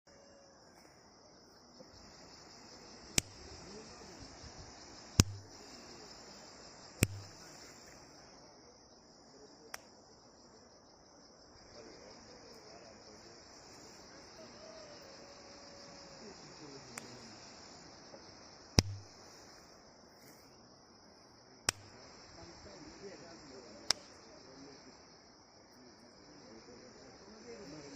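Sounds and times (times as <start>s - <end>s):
insect chirring: 0.1s - 20.8s, 21.6s - 27.9s
flowers popping: 5.2s - 5.5s, 7.0s - 7.4s, 18.8s - 19.1s.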